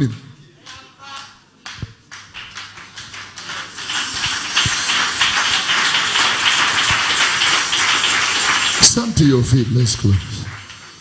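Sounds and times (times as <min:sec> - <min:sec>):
congregation applauding and cheering: 0:00.6 - 0:11.0.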